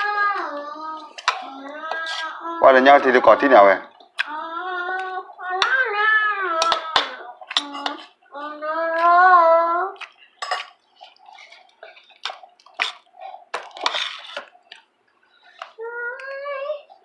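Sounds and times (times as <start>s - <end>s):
dishes and cutlery clinking: 6.6s - 8.1s, 10.0s - 14.6s.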